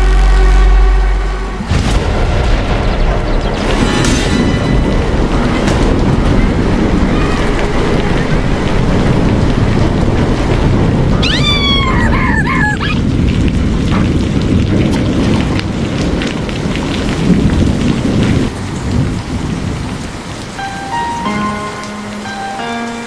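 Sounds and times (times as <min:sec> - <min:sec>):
low rolling thunder: 0:00.0 - 0:22.6
heavy rain: 0:00.0 - 0:23.0
small animal crying: 0:11.2 - 0:13.0.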